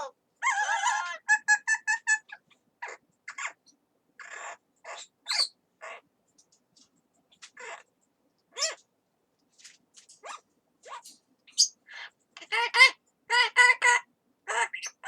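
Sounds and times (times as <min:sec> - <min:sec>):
parrot squawking and chattering: 0:00.0 - 0:06.1, 0:07.3 - 0:07.9, 0:08.5 - 0:08.9, 0:10.1 - 0:15.0.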